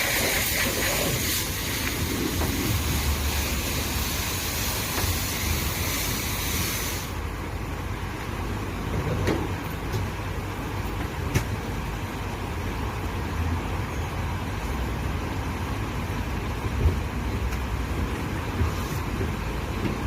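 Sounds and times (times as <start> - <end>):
high-pressure water spray hissing: 0.0 - 7.3.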